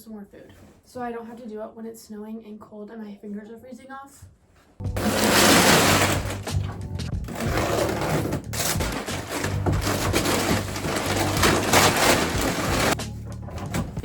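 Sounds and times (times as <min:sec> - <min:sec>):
grain pouring into feeder: 0:05.0 - 0:06.7, 0:07.3 - 0:13.0.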